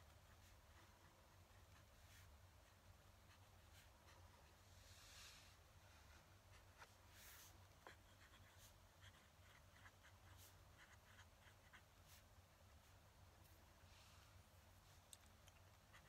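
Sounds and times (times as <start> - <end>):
pen nib scratching on paper: 0.1 - 4.6, 7.8 - 12.3, 15.5 - 16.0.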